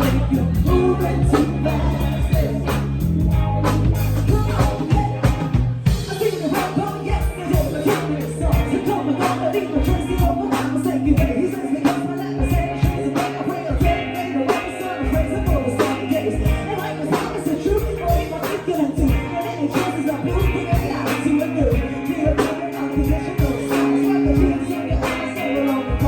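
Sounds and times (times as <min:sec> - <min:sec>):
band playing pop song: 0:00.0 - 0:26.0
held bass line: 0:00.0 - 0:26.0
steady drum beat: 0:00.0 - 0:26.0.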